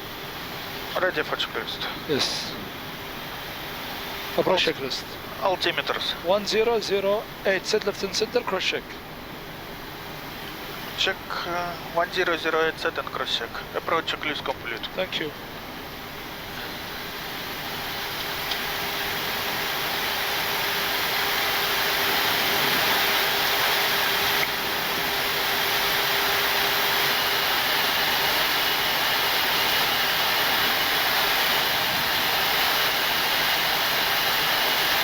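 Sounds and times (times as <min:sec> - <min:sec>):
faint steady hum: 0:00.0 - 0:35.0
rushing airflow and engine noise: 0:00.0 - 0:35.0.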